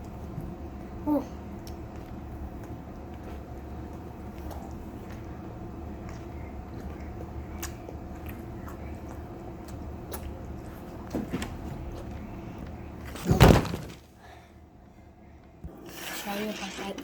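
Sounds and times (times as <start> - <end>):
steady low hum: 0.0 - 17.0
handling and eating noises: 1.2 - 14.2
object dropped with thud and clatter: 13.1 - 14.1.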